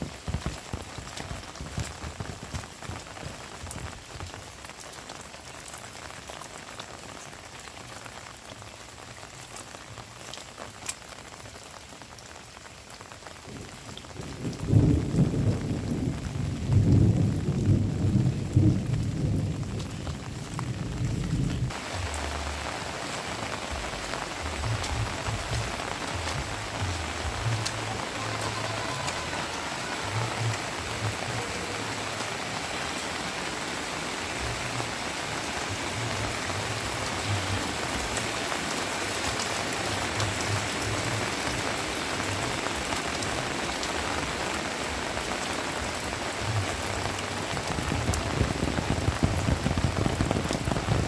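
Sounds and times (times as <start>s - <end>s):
heavy rain falling: 0.0s - 51.0s
thunder rumbling: 14.2s - 51.0s.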